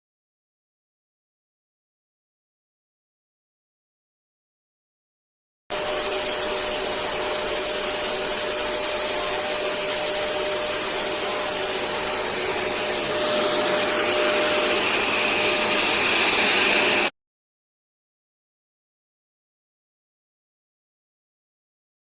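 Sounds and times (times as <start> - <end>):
vacuum cleaner running: 5.7 - 17.2.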